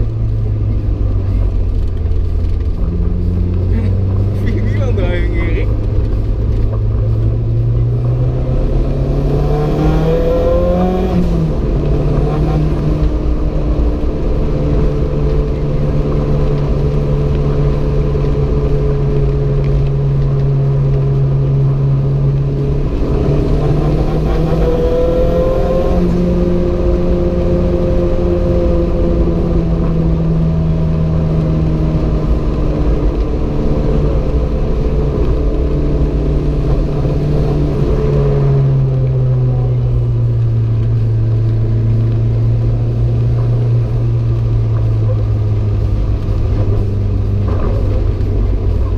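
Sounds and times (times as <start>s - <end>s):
car engine revving: 0.0s - 48.9s
road noise: 0.0s - 48.9s.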